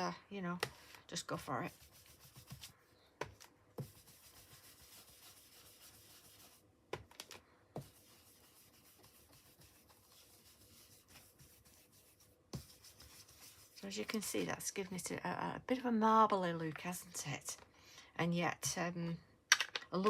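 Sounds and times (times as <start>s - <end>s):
brush rubbing on cardstock: 1.3s - 2.7s, 3.8s - 6.6s, 7.8s - 14.2s.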